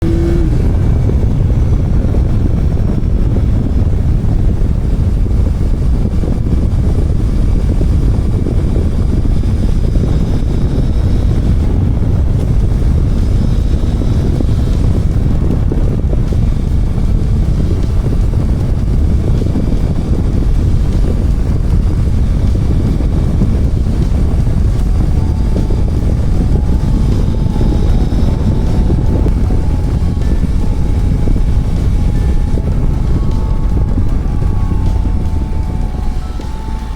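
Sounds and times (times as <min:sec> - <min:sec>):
motorcycle engine running: 0:00.0 - 0:36.9
wind rush over microphone: 0:00.0 - 0:36.9.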